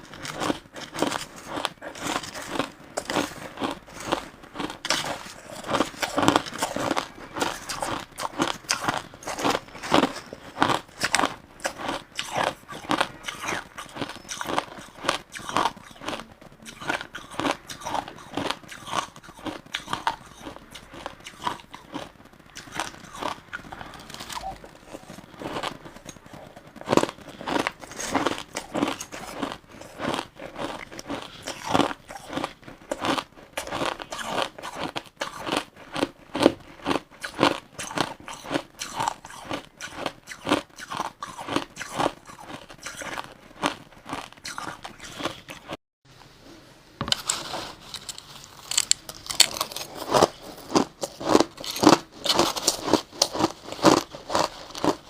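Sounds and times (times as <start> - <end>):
crushed ice being chewed: 0.0 - 45.8, 47.1 - 55.0.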